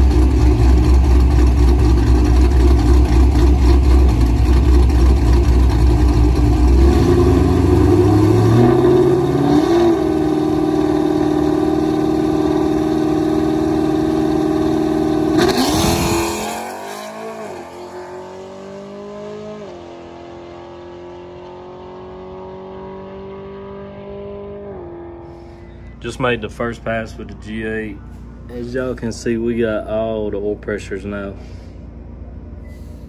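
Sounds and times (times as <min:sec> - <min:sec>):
drag car engine revving: 0:00.0 - 0:25.6.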